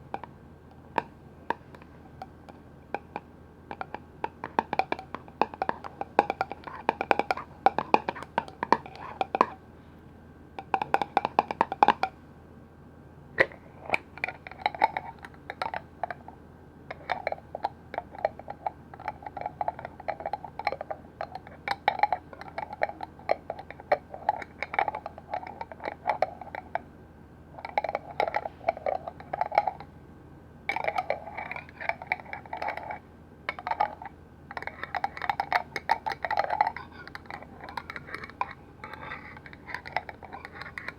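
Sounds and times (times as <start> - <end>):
tapping on a hard container: 1.0 - 9.6, 10.6 - 12.1, 13.4 - 16.2, 16.9 - 26.9, 27.6 - 29.9, 30.7 - 40.9.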